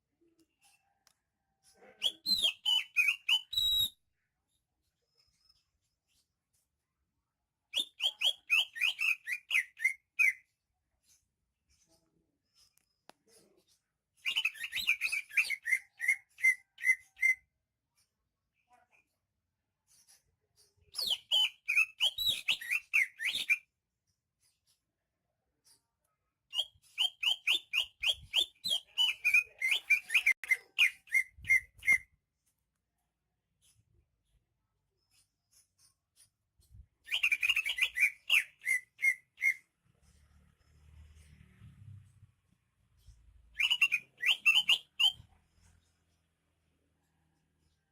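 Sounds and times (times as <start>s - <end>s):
bird whistling sharp downslurred notes: 2.0s - 4.0s, 7.8s - 10.4s, 21.0s - 23.6s, 26.5s - 32.1s, 37.1s - 39.6s, 43.5s - 45.3s.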